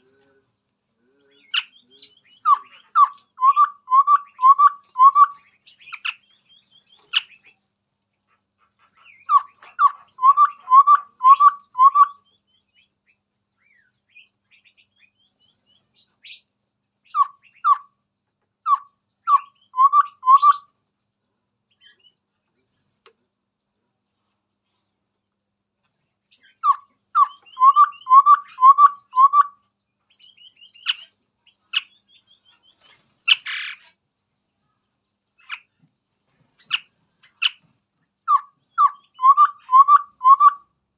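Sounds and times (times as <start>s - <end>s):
high chattering bird calls: 0.0s - 40.9s
bird singing repeated notes: 1.2s - 7.5s, 8.8s - 15.2s, 16.0s - 20.7s, 26.3s - 34.0s, 34.6s - 40.9s.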